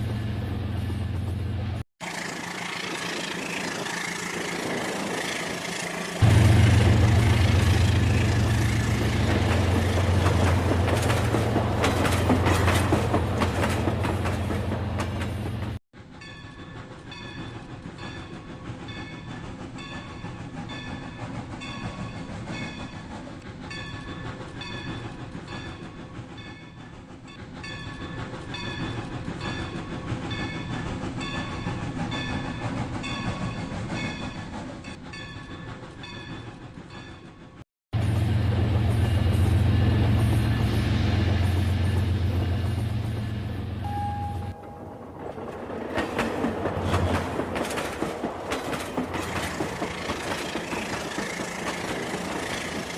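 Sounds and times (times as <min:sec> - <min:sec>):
wheels clicking over track: 0:44.5 - 0:52.9.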